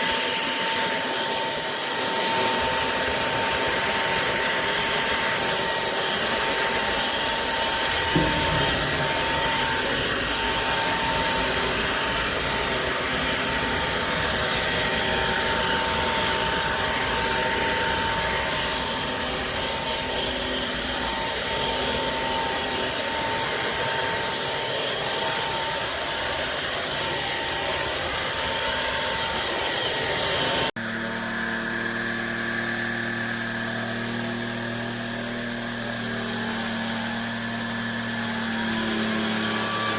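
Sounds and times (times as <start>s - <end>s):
stick vacuum whining: 0.0s - 39.9s.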